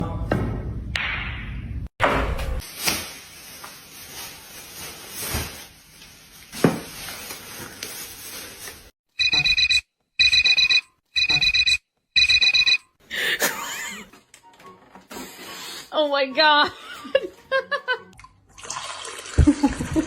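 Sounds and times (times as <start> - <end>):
electronic beeper: 9.2 - 12.8.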